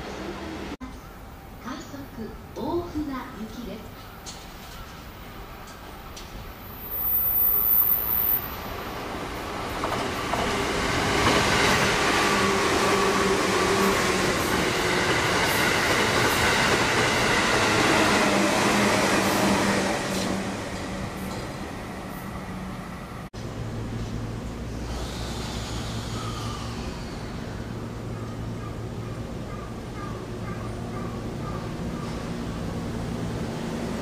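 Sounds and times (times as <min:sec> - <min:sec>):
electric train passing at speed: 0:00.0 - 0:34.0
rail joint clicks: 0:04.0 - 0:08.6, 0:20.1 - 0:22.9.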